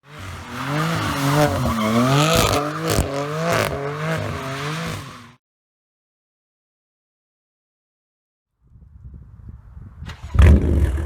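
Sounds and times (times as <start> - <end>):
car engine revving: 0.0 - 5.4.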